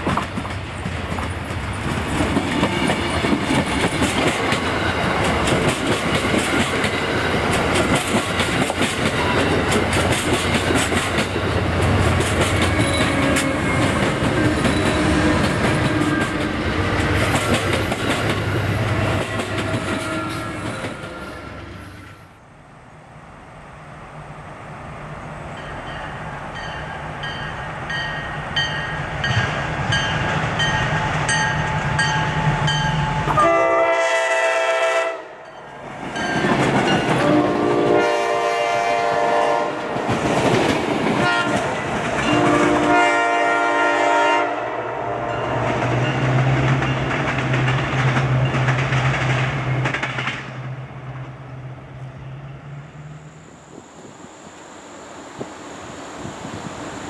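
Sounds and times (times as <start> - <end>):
train wheels on rails: 0.0 - 22.4, 24.6 - 57.0
diesel locomotive approaching: 0.0 - 57.0
crossing bell ringing: 25.5 - 33.6, 35.4 - 37.3
locomotive air horn blasts: 33.2 - 35.4, 37.2 - 39.9, 41.2 - 45.4.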